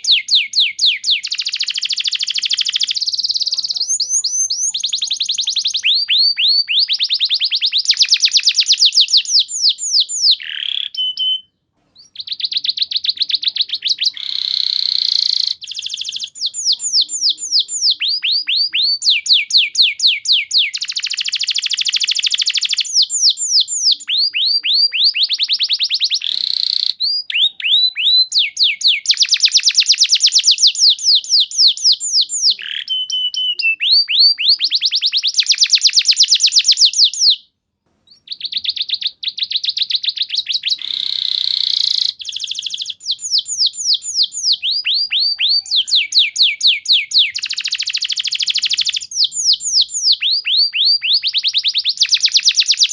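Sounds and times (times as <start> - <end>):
canary singing trills: 0.0 - 37.5, 38.1 - 52.9.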